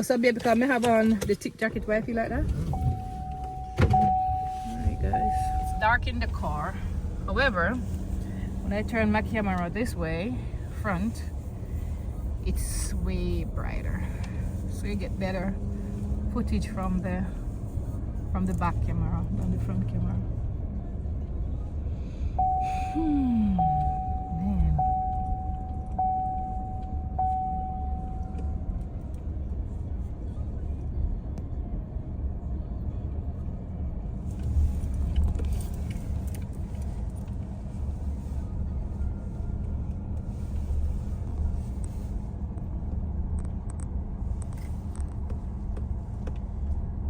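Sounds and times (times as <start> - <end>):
road rumble inside car: 0.0 - 47.0
thin steady tone: 2.8 - 6.8, 22.4 - 28.8.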